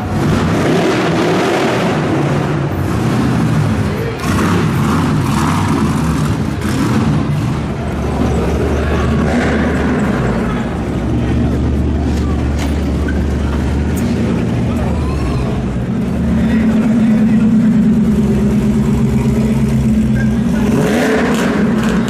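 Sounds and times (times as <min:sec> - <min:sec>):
car engine rumbling: 0:00.0 - 0:22.0
people talking: 0:03.7 - 0:04.8, 0:07.7 - 0:22.0.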